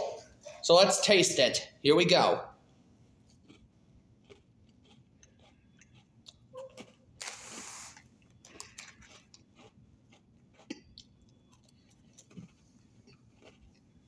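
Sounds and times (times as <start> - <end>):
person chewing cookie: 2.6 - 14.0.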